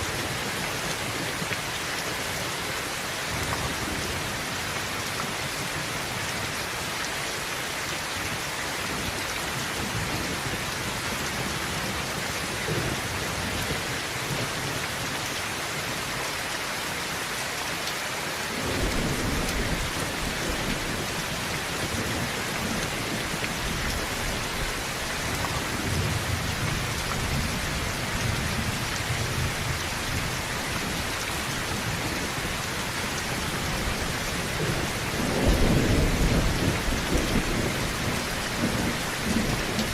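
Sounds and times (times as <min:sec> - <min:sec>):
heavy rain on a tin roof: 0:00.0 - 0:39.9
low rolling thunder: 0:18.6 - 0:32.6, 0:33.2 - 0:39.9.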